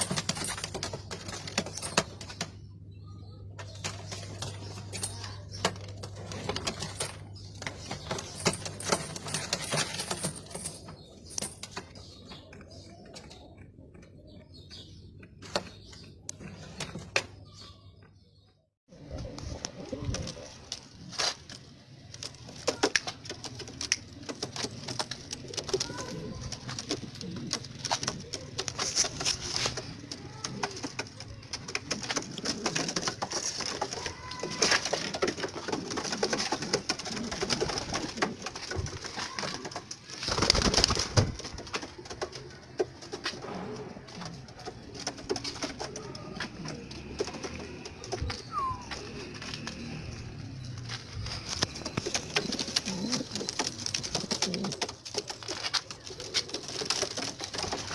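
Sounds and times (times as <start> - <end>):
birds clicking and knocking: 0.0 - 18.2, 19.2 - 57.9
pigeons cooing: 18.9 - 21.2, 24.2 - 57.9.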